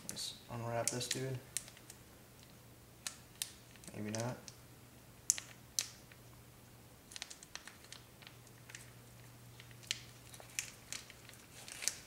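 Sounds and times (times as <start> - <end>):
low steady hum: 0.0 - 12.0
plastic pouch crinkling and tearing: 7.1 - 12.0.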